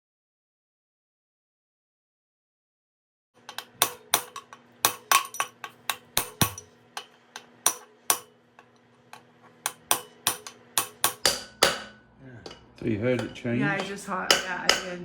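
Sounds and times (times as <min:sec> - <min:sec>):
hammer tapping metal: 0:03.4 - 0:15.0.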